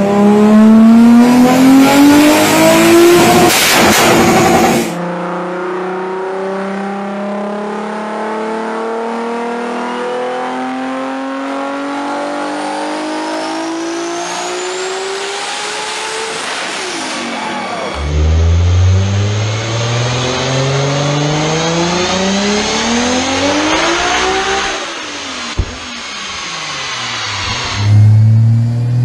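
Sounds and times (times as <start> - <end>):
car engine revving at full throttle: 0.0 - 29.0
thin rising whine: 13.3 - 29.0.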